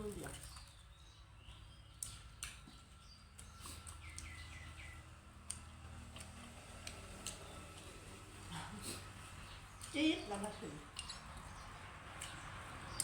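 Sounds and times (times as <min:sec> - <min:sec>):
small bird chirping: 0:00.1 - 0:08.1.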